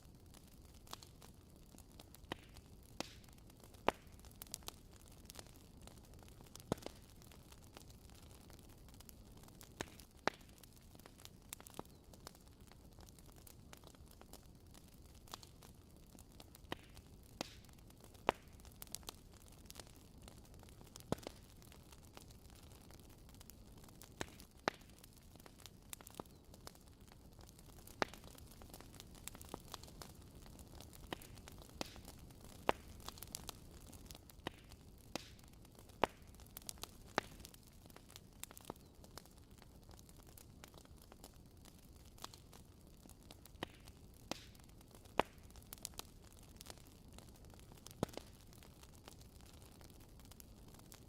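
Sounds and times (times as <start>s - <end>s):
wood fire crackling: 0.0s - 51.0s.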